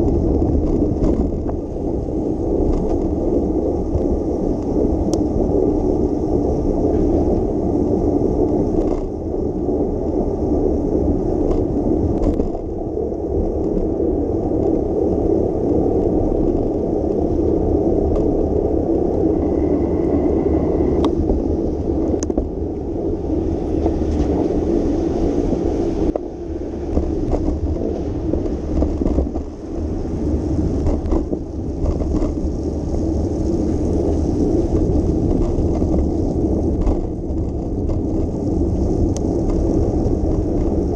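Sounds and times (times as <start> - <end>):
bike clicks and knocks: 0.0 - 1.6, 8.7 - 9.1, 11.4 - 12.7, 26.9 - 29.5, 30.8 - 32.5, 34.7 - 39.6
bicycle tyres on wet pavement: 0.0 - 40.9
wind noise on microphone: 0.0 - 40.9.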